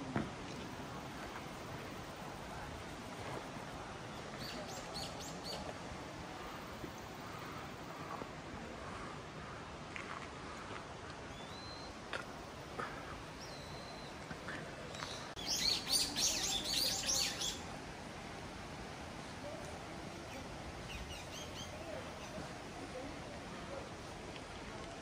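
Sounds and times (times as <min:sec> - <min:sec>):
steady background hiss: 0:00.0 - 0:25.0
songbird singing: 0:03.8 - 0:08.0, 0:11.2 - 0:17.7, 0:20.2 - 0:22.6.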